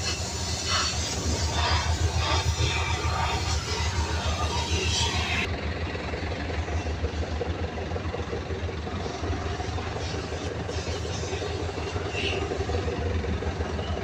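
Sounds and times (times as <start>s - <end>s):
engine running with pulsing rumble: 0.0s - 14.0s.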